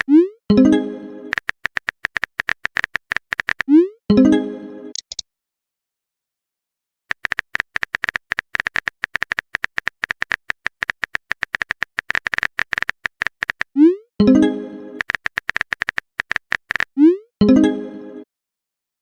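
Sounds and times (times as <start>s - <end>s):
phone keyboard typing clicks: 1.3s - 3.7s, 4.9s - 5.2s, 7.1s - 13.8s, 15.0s - 17.0s.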